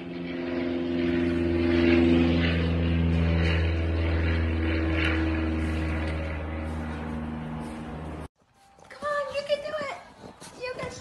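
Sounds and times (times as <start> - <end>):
engine drone: 0.0 - 8.3.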